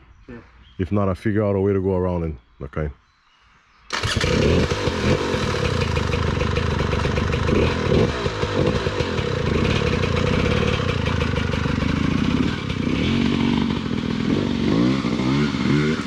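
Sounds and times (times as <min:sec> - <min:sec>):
dirt bike engine revving: 0:03.9 - 0:16.0.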